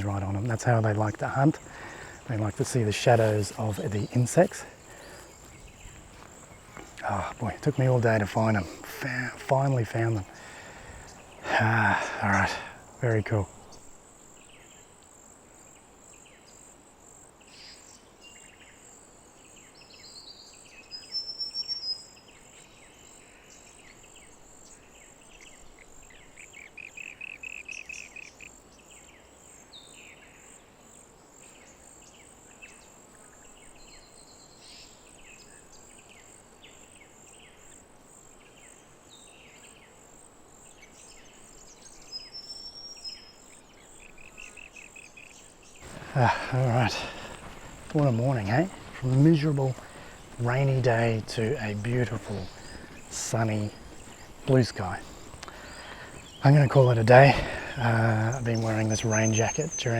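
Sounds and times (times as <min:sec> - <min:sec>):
small birds chirping: 0:00.0 - 0:15.0, 0:17.4 - 0:40.0, 0:40.6 - 0:59.9
high insect drone: 0:00.0 - 0:59.9.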